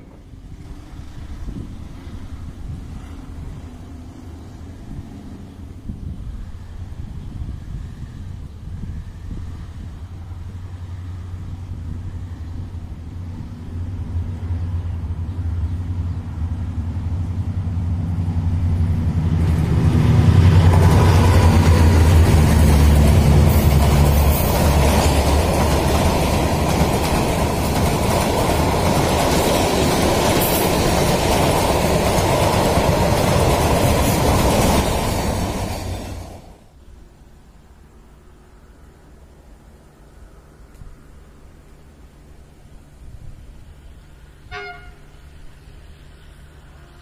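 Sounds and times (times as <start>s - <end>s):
train wheels rumbling on rails: 0.0s - 36.8s
train engine drone: 0.0s - 47.0s.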